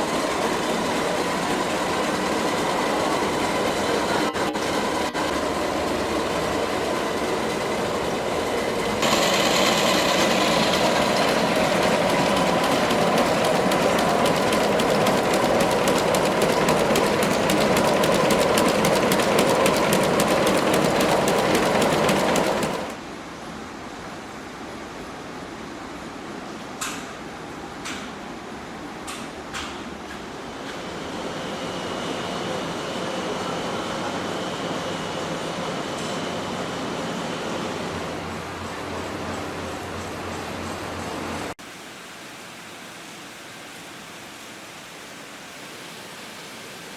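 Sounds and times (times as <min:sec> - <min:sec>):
factory machinery clattering: 0:00.0 - 0:23.0.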